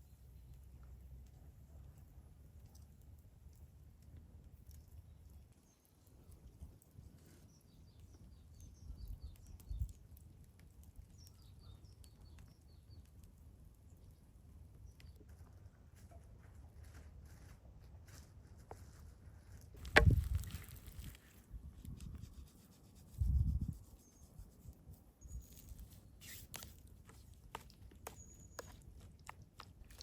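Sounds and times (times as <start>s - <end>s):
small bird chirping: 11.1s - 13.1s, 28.0s - 30.0s.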